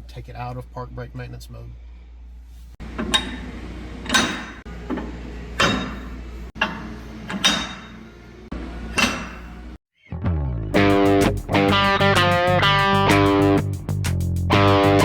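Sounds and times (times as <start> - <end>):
sharp metallic clanks: 3.0 - 8.1, 8.9 - 9.6.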